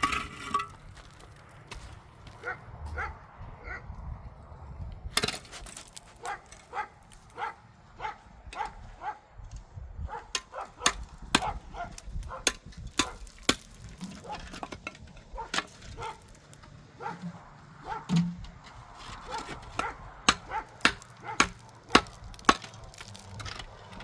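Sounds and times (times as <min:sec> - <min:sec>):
dog barking: 0:02.4 - 0:03.9, 0:06.2 - 0:09.2, 0:10.1 - 0:10.8, 0:11.4 - 0:12.4, 0:15.4 - 0:16.2, 0:17.0 - 0:17.2, 0:17.8 - 0:18.1, 0:19.3 - 0:21.6.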